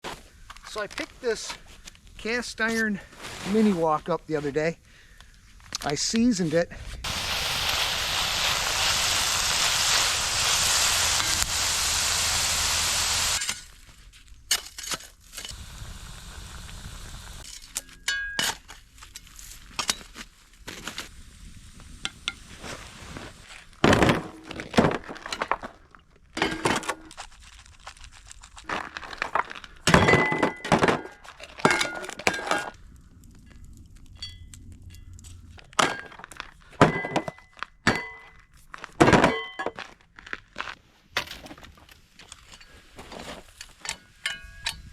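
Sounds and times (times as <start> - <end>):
loud steady hiss: 7.0 - 13.7, 15.4 - 17.5.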